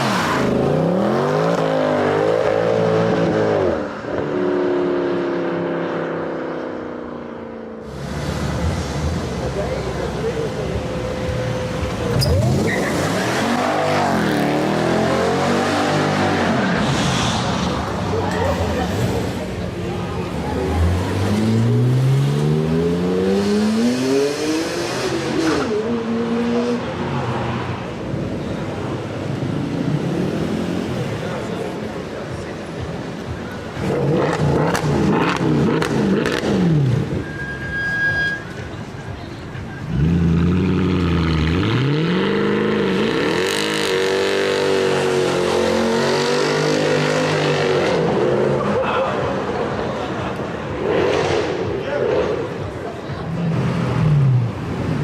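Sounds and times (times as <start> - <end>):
sports car accelerating hard: 20.3 - 27.3, 33.8 - 37.2, 39.9 - 55.0
sports car engine revving: 20.6 - 27.0, 33.7 - 37.1.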